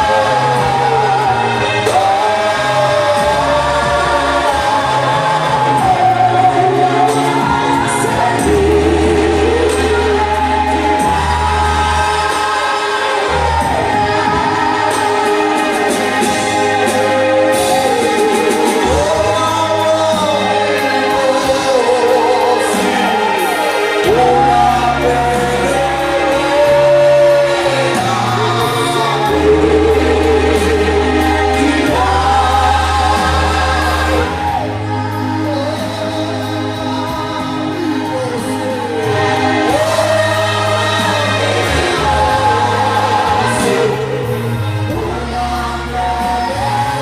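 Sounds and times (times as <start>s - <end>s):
low bass notes: 0.0s - 23.1s, 24.0s - 47.0s
choir singing: 0.0s - 47.0s.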